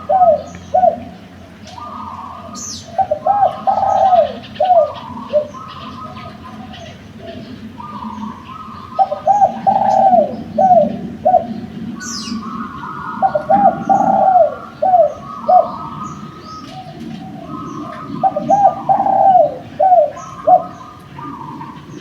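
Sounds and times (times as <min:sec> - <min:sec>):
dove cooing: 0:00.0 - 0:22.0.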